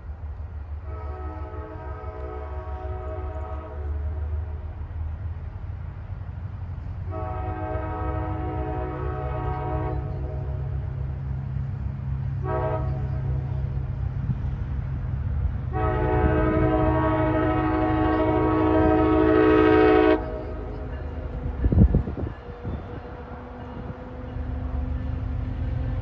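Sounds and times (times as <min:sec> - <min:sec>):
diesel train rumble: 0:00.0 - 0:26.0
train air horn blasts: 0:00.8 - 0:04.6, 0:07.0 - 0:10.8, 0:12.4 - 0:13.7, 0:15.7 - 0:20.8.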